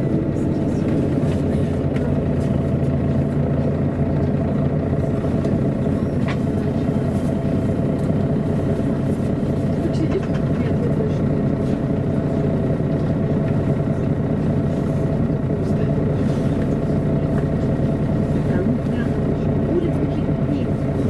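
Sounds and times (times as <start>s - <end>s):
bus diesel engine running: 0.0s - 21.0s.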